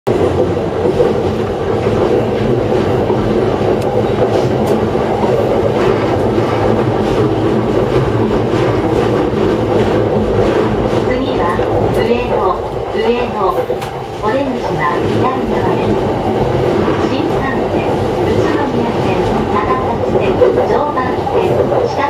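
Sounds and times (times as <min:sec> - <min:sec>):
train wheels rumbling: 0:00.1 - 0:22.0.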